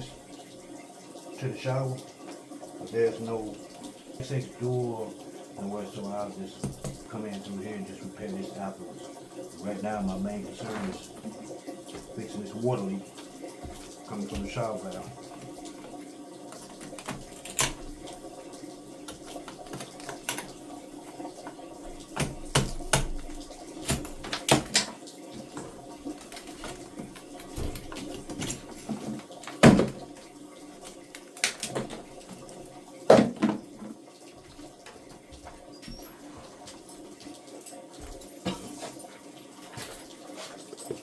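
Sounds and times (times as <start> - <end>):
knocks and clicks at a wall: 6.6 - 7.0.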